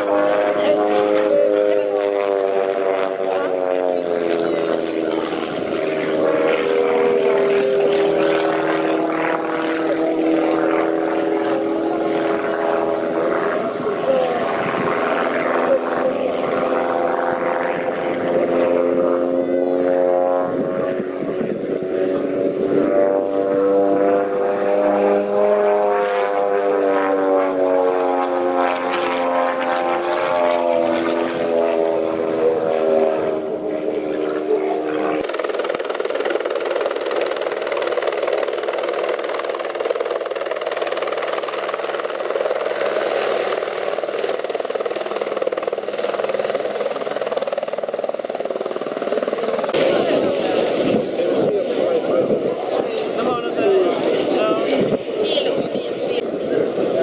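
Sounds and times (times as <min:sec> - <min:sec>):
propeller aircraft engine droning: 0:00.0 - 0:57.0.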